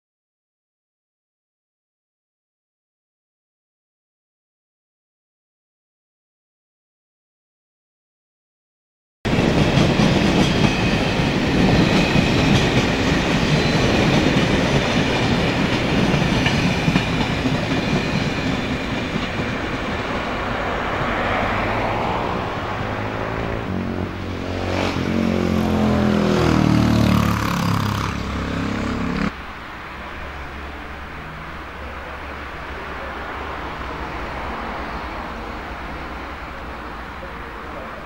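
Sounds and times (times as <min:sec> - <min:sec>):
train wheels rushing on rail: 0:09.3 - 0:38.0.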